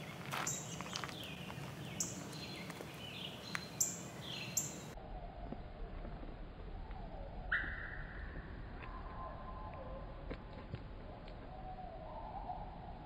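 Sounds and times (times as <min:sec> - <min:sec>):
bird calling: 0:00.0 - 0:05.0, 0:07.1 - 0:08.3.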